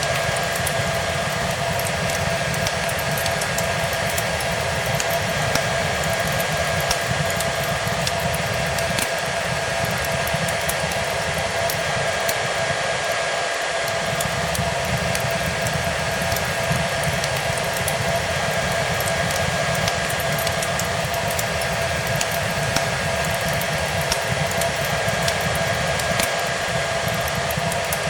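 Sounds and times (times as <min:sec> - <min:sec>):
fireplace crackling and popping: 0:00.0 - 0:28.0
hair dryer running: 0:00.0 - 0:28.0.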